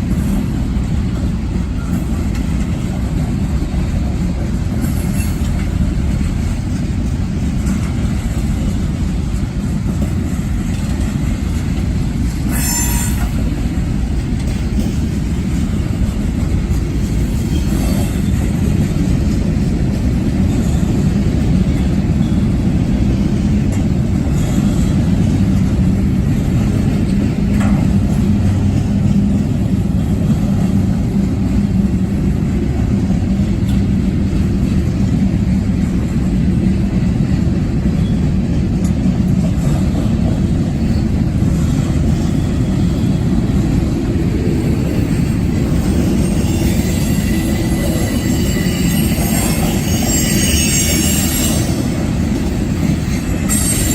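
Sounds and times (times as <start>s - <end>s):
freight train rumbling on rails: 0.0s - 53.9s
train wheel squeal: 1.7s - 2.7s, 4.7s - 5.9s, 12.4s - 13.7s, 17.2s - 18.8s, 20.4s - 22.8s, 23.7s - 25.3s, 37.9s - 38.4s, 40.7s - 43.5s, 45.1s - 53.9s.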